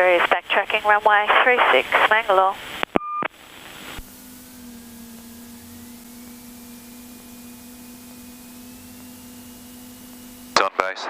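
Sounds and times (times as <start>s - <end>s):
aircraft cabin hum: 0.0s - 10.6s
thin whine rising in pitch: 3.0s - 11.0s.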